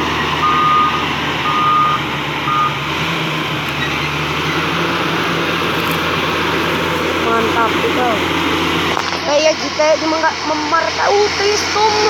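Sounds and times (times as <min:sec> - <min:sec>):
reversing alarm beeping: 0:00.0 - 0:02.8
truck engine running: 0:00.0 - 0:12.0.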